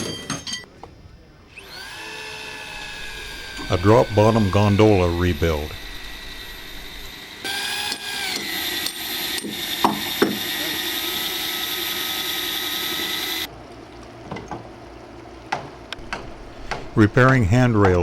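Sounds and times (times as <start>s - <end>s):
electric power tool whining: 1.5s - 13.5s.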